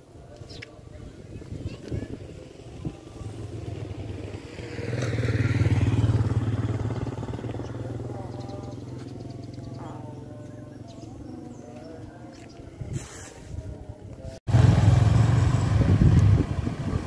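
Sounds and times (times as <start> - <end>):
small engine passing by: 2.3 - 10.9, 14.5 - 17.0.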